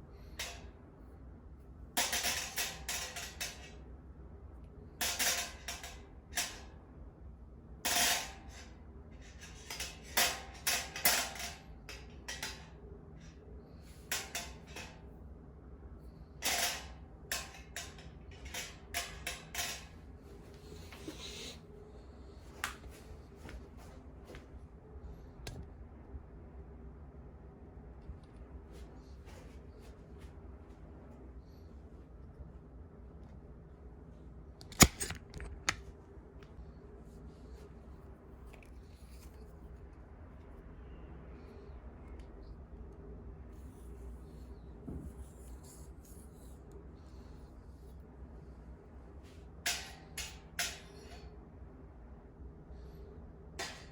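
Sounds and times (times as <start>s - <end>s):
low steady hum: 0.0s - 53.9s
sharp clicks: 34.6s - 35.8s.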